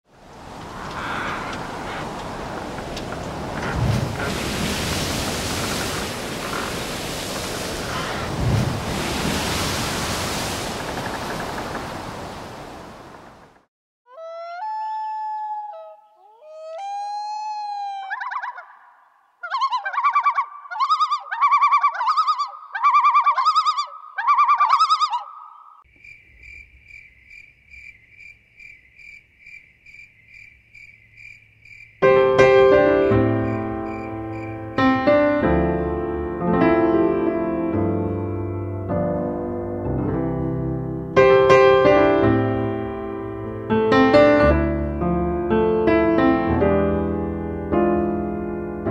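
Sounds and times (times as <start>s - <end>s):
wind: 0.0s - 48.9s
ocean surf: 0.1s - 13.7s
bird calls rising and falling: 0.6s - 3.7s, 14.1s - 25.8s
piano: 32.0s - 48.9s.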